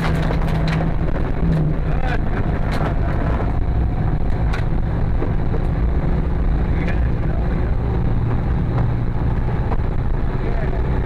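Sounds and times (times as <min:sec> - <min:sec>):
car engine rumbling at low revs: 0:00.0 - 0:11.0.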